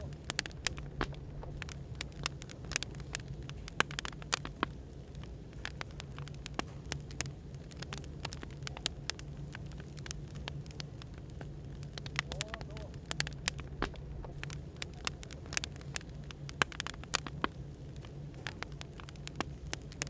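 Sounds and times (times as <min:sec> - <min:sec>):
cafe background hum: 0:00.0 - 0:20.0
wood fire crackling: 0:00.0 - 0:20.0.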